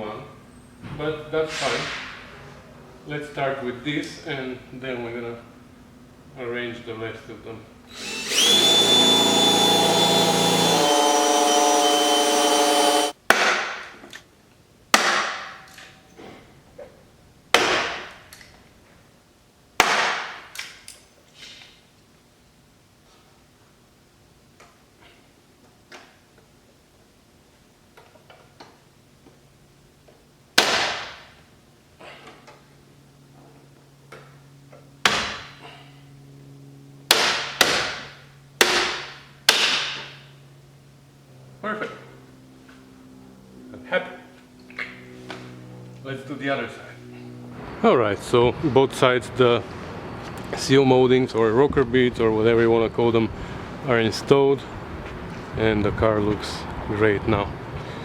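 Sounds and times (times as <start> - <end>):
steady low hum: 0.0 - 13.2, 20.4 - 58.0
electric drill boring: 7.9 - 13.2.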